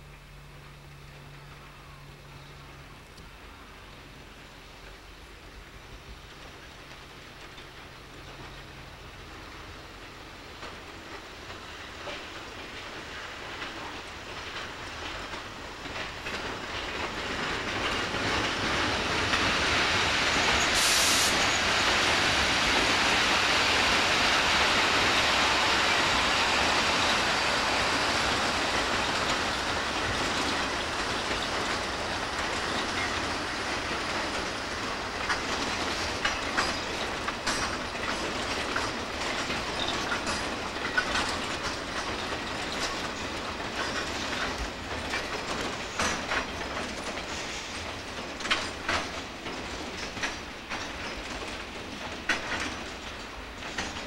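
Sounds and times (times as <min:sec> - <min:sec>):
brief hiss: 0:20.4 - 0:22.0, 0:47.3 - 0:47.8.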